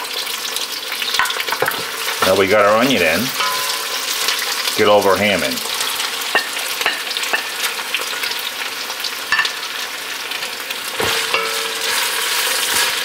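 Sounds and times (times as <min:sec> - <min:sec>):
ham and onions sizzling in oil: 0:00.0 - 0:13.0
utensils knocking against pot: 0:03.4 - 0:04.0, 0:06.3 - 0:07.7, 0:11.0 - 0:12.9.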